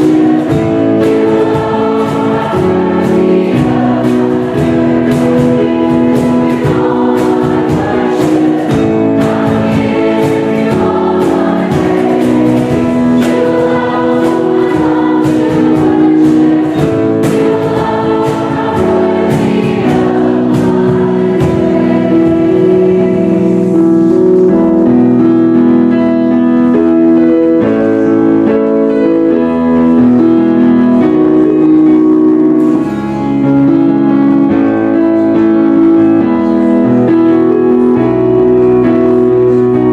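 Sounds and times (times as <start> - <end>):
choir singing: 0.0 - 24.9.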